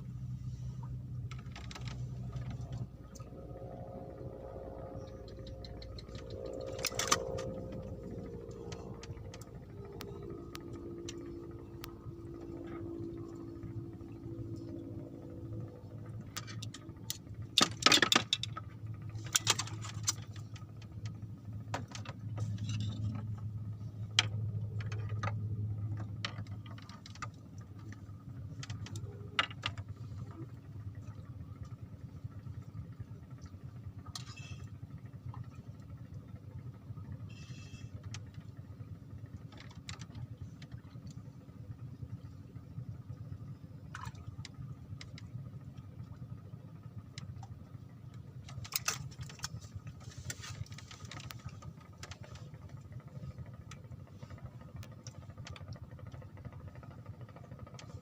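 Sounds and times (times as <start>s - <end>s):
motor humming: 0.3s - 26.2s
sharp clicks and rattles: 1.3s - 31.7s, 37.9s - 42.4s, 43.4s - 58.0s.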